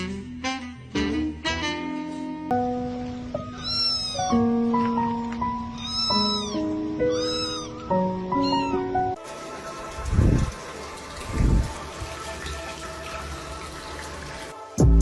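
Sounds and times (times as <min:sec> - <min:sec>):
background music of held notes: 0:00.0 - 0:11.0
cat meowing: 0:03.5 - 0:04.5, 0:05.6 - 0:09.0.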